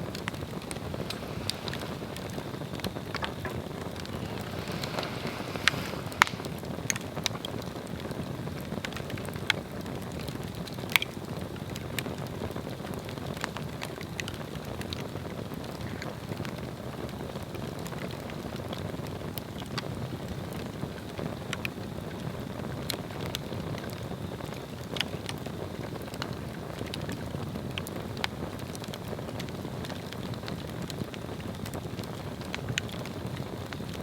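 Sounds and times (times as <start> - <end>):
rush of flame: 0.0 - 11.0
fire crackling and popping: 0.0 - 34.0.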